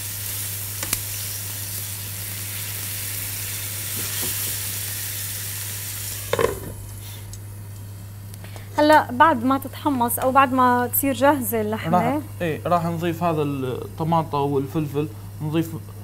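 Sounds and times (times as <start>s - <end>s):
chicken sizzling in frying pan: 0.0s - 7.0s.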